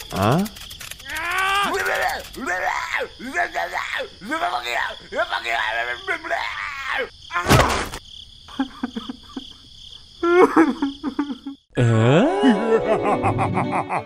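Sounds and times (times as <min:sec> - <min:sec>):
scattered clicks: 0:00.0 - 0:03.2
loud cartoon crash: 0:07.4 - 0:08.0.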